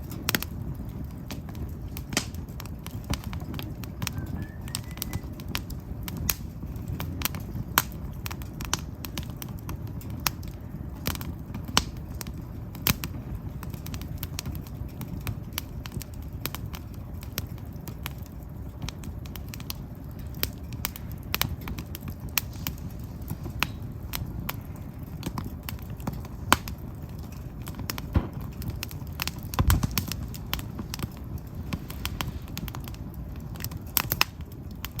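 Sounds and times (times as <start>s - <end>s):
fire crackling and popping: 0.0s - 35.0s
low fire rumble: 0.0s - 35.0s
low thump: 28.2s - 28.9s.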